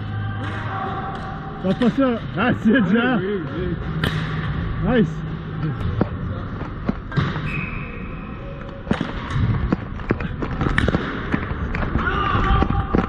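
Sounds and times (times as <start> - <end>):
hockey sticks clacking on ball: 5.7 - 7.5, 8.6 - 13.0.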